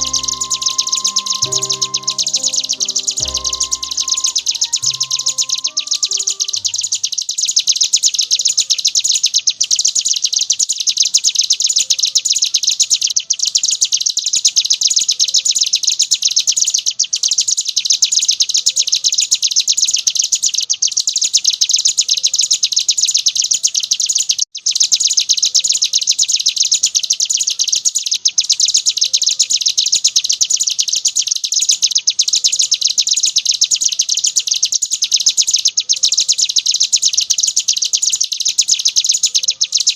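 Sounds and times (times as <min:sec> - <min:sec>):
bird singing rapid chatter: 0:00.0 - 0:09.7, 0:24.1 - 0:39.9.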